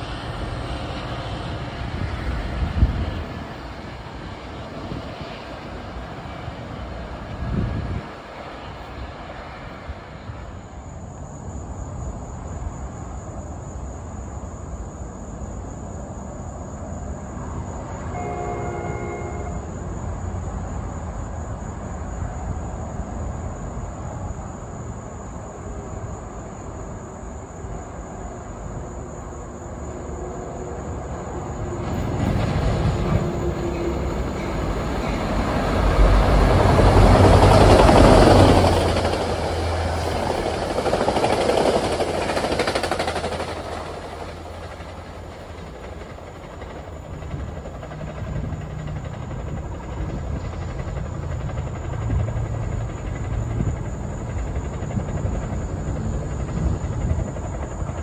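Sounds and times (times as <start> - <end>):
low train rumble: 0.0 - 58.0
chord of steady tones: 18.1 - 19.7.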